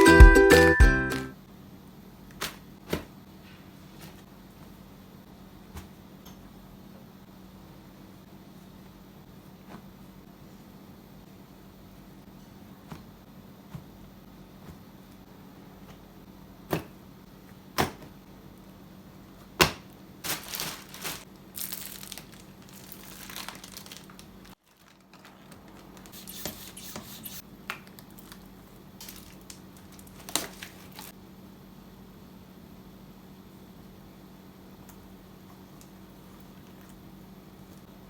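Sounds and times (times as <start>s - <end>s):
packaging crinkling rustle: 19.4s - 31.1s.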